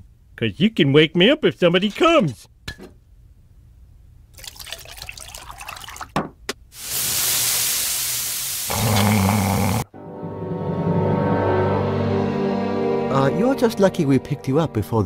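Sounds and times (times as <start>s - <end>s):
loud rushing hiss: 6.8s - 9.8s.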